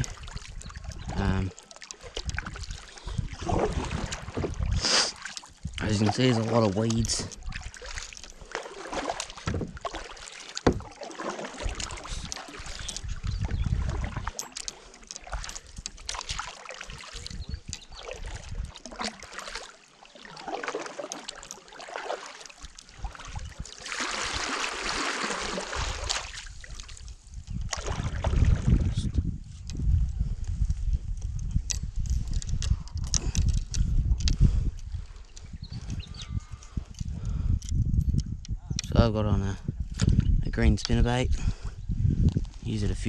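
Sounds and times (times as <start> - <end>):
water splashing around kayak: 0.0 - 29.8
knocks on kayak hull: 10.7 - 10.9.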